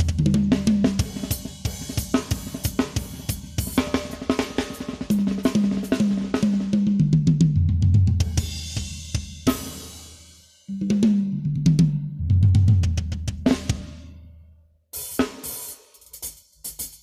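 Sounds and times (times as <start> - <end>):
snare and hi-hat strokes: 0.0 - 7.4, 8.1 - 10.6, 15.0 - 17.0.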